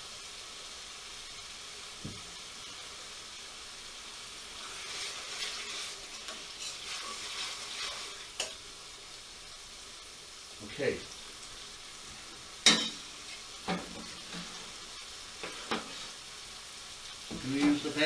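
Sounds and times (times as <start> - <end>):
sauce sizzling in a pan: 0.0 - 18.0
spoon stirring and scraping: 6.2 - 8.6.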